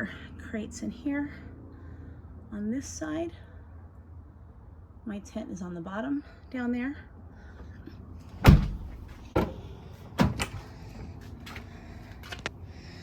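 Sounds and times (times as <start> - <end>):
knocks and thumps: 8.4 - 9.6.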